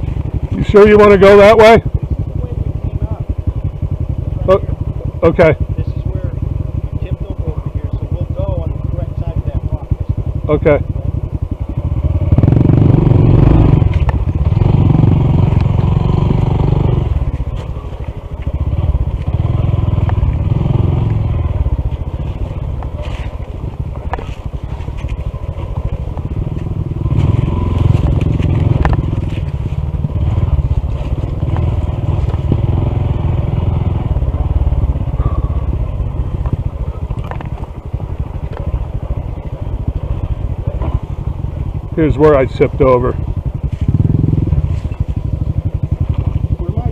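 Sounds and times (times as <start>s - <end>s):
motorbike engine running: 0.0s - 46.9s
knocks and clicks over rough ground: 13.8s - 14.4s, 20.0s - 32.6s, 34.8s - 46.9s.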